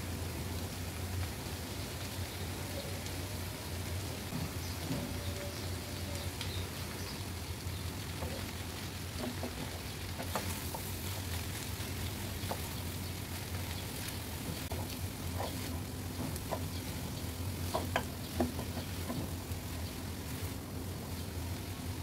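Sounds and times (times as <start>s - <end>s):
food sizzling in oil: 0.0s - 22.0s
spatula scraping and tapping pan: 9.1s - 20.6s.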